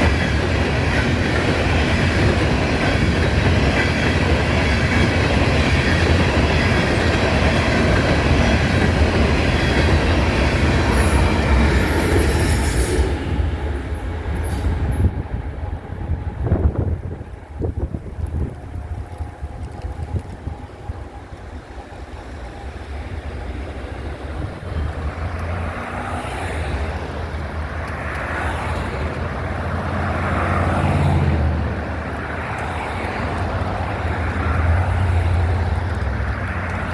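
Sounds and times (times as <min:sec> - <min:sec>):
wind noise on microphone: 0:00.0 - 0:22.0, 0:22.6 - 0:25.6
freight train wheels rumbling: 0:00.0 - 0:36.9.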